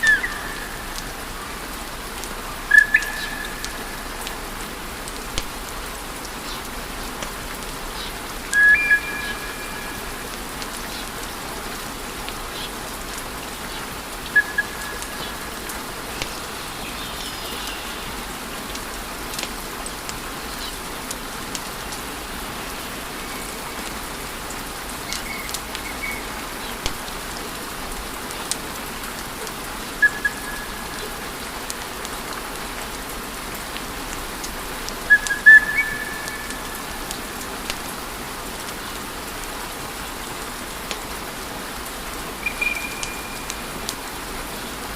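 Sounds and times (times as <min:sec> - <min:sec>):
high whistles: 0:42.4 - 0:43.7.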